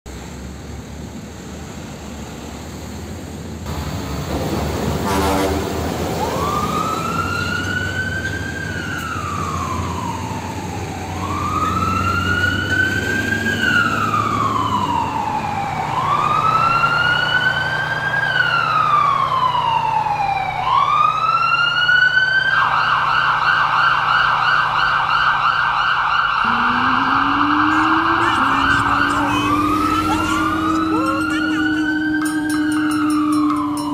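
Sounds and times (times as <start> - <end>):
emergency siren wailing: 5.0 - 33.9
low vehicle rumble: 26.3 - 33.9.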